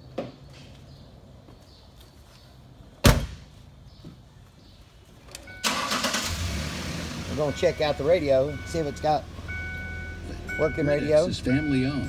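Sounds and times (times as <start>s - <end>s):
truck door slamming: 3.0s - 3.5s.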